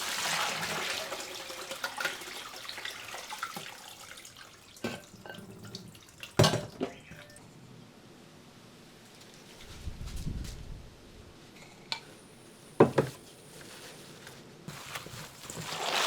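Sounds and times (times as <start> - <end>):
water splashing at a sink: 0.0 - 7.0, 15.4 - 16.0.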